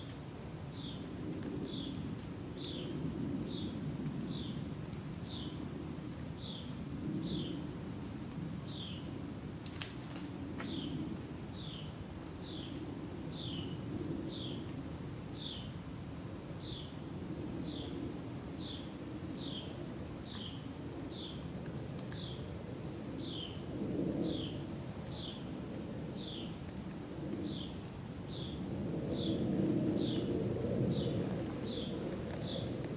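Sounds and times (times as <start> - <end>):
steady low rumble: 20.1 - 32.9.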